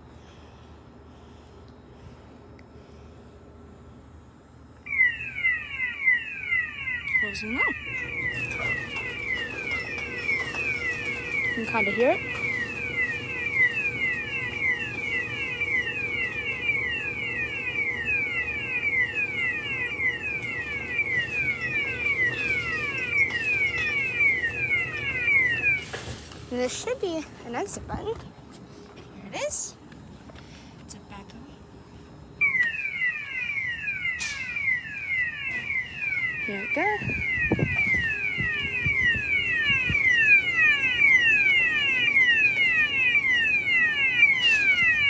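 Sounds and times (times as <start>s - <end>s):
faint steady hum: 0.0s - 45.0s
gate alarm falling electronic chirps: 4.9s - 27.8s, 32.4s - 45.0s.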